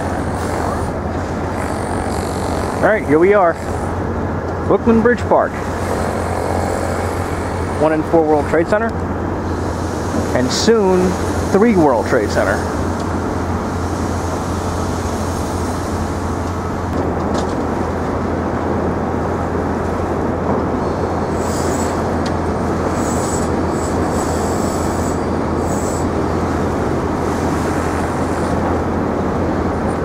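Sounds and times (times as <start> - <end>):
train rumbling: 0.0 - 30.0.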